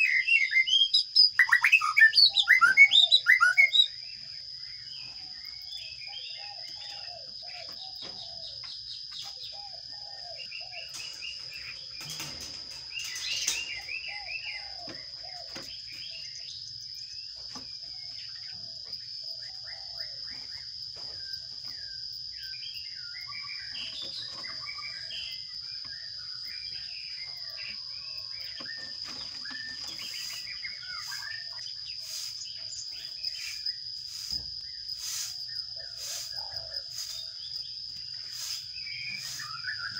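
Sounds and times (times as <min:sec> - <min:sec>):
sparrows chirping: 0:00.0 - 0:39.9
knocks and scrapes: 0:10.8 - 0:16.2, 0:28.6 - 0:31.4, 0:32.0 - 0:39.9.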